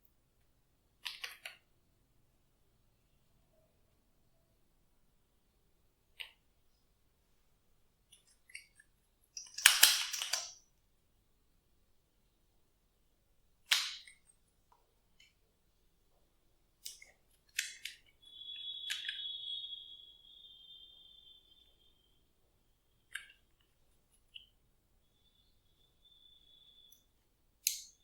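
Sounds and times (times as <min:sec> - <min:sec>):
thin high squeak: 0:17.7 - 0:22.2.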